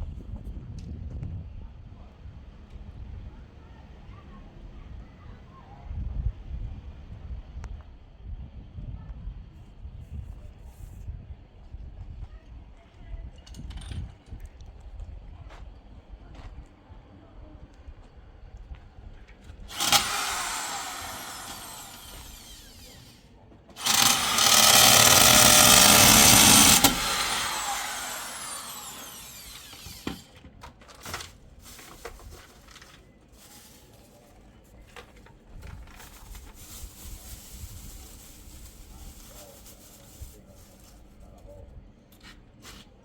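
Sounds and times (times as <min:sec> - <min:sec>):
electric motor running: 0:19.7 - 0:23.2, 0:23.8 - 0:30.3.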